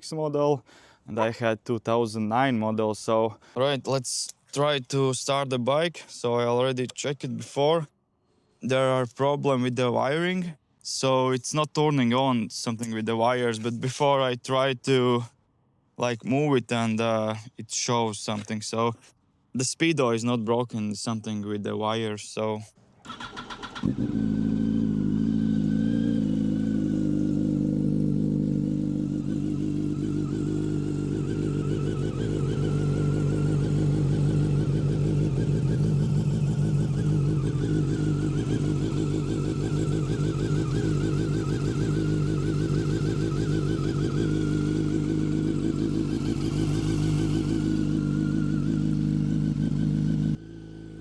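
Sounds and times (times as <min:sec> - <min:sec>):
motorcycle engine idling: 0:23.1 - 0:51.0.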